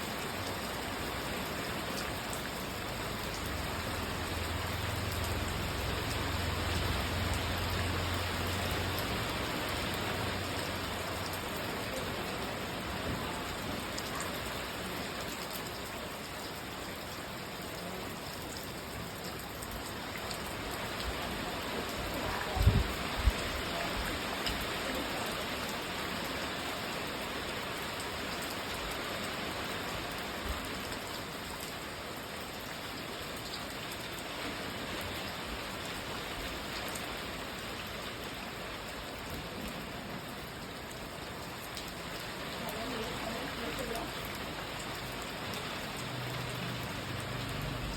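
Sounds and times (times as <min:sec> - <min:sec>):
rain pattering: 0:00.0 - 0:47.9.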